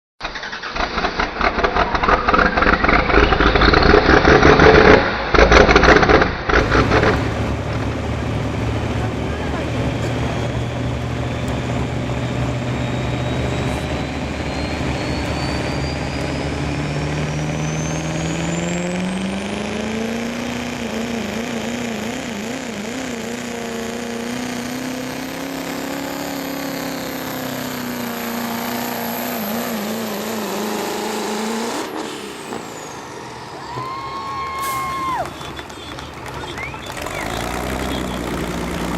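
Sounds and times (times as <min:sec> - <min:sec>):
diesel engine at full throttle: 0:00.2 - 0:38.9
turbo whistle: 0:10.1 - 0:18.7, 0:33.6 - 0:38.9.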